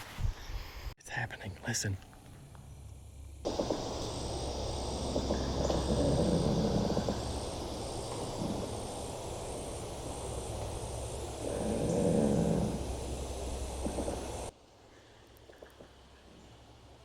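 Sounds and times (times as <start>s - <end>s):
tree trunks creaking and groaning: 3.5s - 14.5s.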